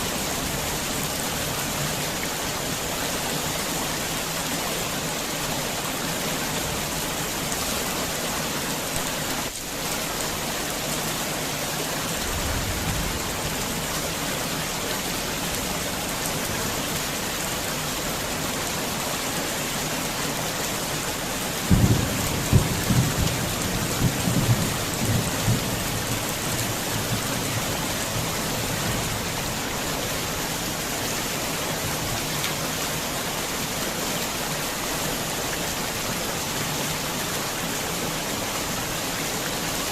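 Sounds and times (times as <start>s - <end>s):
heavy rain falling: 0.0s - 39.9s
thunder rumbling and cracking: 21.7s - 28.3s.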